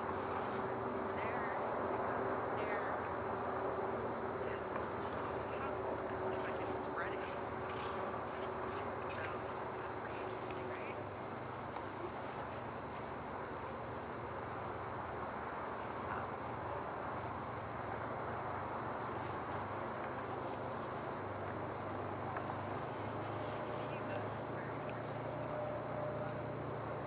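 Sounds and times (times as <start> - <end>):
low background rush: 0.0 - 27.0.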